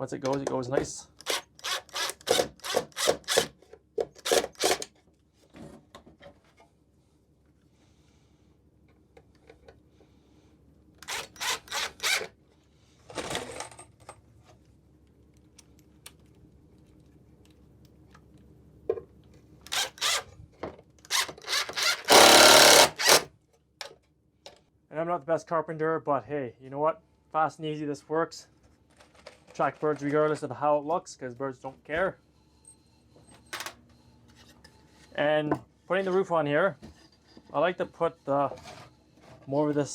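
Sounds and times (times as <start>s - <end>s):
power drill driving screws: 1.2s - 3.5s, 4.2s - 4.9s, 11.0s - 12.3s, 19.7s - 20.2s, 21.1s - 23.3s.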